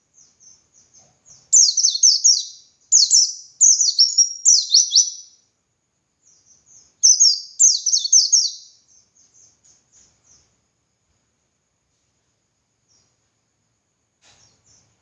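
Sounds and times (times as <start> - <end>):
bird twittering song: 0.0 - 5.5, 6.2 - 10.6, 12.8 - 13.3, 14.4 - 15.0.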